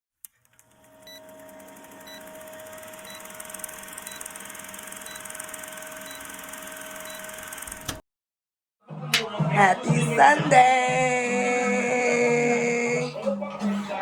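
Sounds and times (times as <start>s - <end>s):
short high electronic beep: 3.0s - 3.3s, 5.0s - 5.3s.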